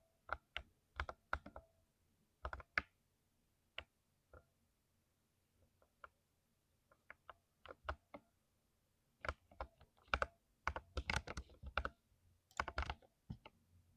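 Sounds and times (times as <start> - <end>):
typing on mechanical keyboard: 0.3 - 1.6, 9.2 - 11.9, 12.5 - 13.5.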